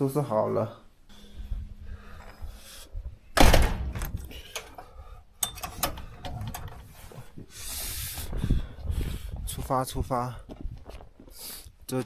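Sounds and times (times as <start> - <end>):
wind on microphone: 8.0 - 11.1.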